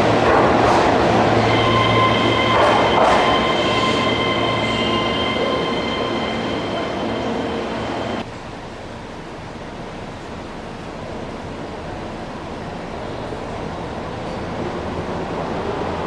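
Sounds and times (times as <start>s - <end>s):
train wheels squealing: 1.2s - 8.2s.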